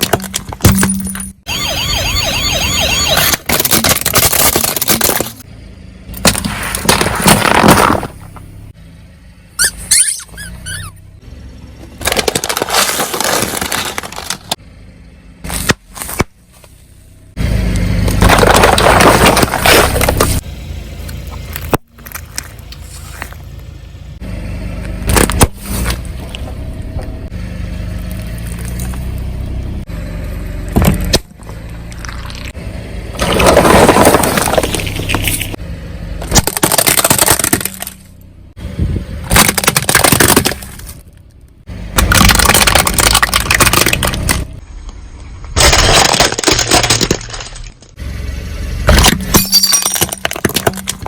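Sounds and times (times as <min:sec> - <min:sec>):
car crushing objects: 0:00.0 - 0:01.5, 0:03.0 - 0:05.5, 0:06.1 - 0:08.7, 0:11.8 - 0:14.6, 0:18.0 - 0:20.4, 0:24.9 - 0:26.6, 0:28.0 - 0:29.3, 0:30.6 - 0:35.6, 0:36.2 - 0:38.2, 0:39.2 - 0:44.6, 0:45.4 - 0:48.0, 0:48.8 - 0:51.0
low engine rumble: 0:03.8 - 0:45.6, 0:47.1 - 0:51.0.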